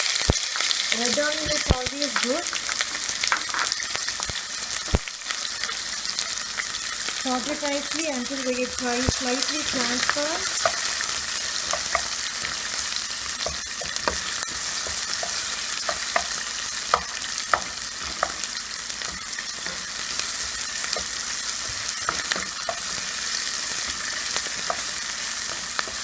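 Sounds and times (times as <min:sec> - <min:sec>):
onion sizzling in oil: 0:00.0 - 0:26.0
spatula scraping pan: 0:08.2 - 0:26.0.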